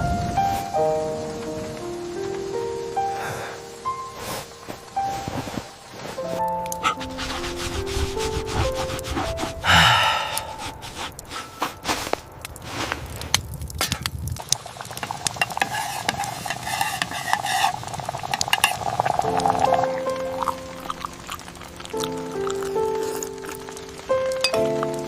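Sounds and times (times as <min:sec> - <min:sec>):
food sizzling: 0:00.0 - 0:25.0
utensils clinking on cookware: 0:15.4 - 0:19.0.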